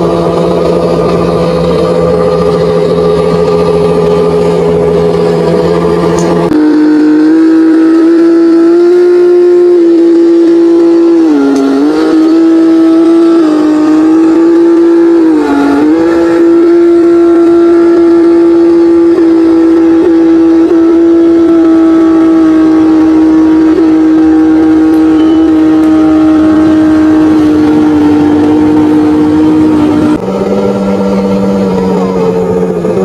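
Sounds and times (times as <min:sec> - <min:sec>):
diesel engine droning under load: 0:00.0 - 0:33.0.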